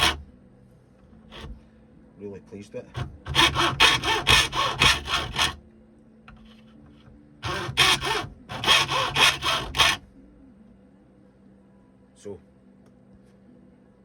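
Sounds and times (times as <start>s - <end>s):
hacksaw rasping strokes: 0.0s - 0.2s, 1.3s - 1.6s, 3.0s - 5.6s, 7.4s - 10.0s.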